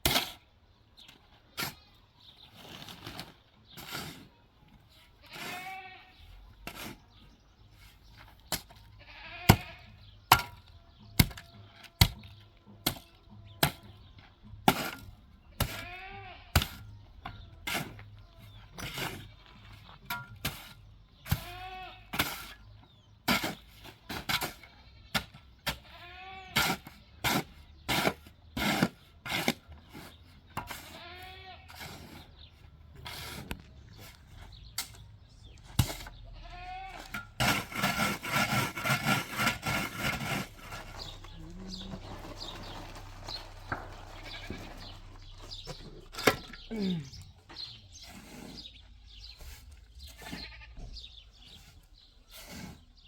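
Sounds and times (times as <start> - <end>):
livestock bleating: 5.2 - 6.4, 8.9 - 10.0, 15.7 - 16.6, 21.4 - 22.1, 25.8 - 26.6, 30.9 - 31.7, 36.2 - 37.2, 40.5 - 47.1, 50.2 - 51.0.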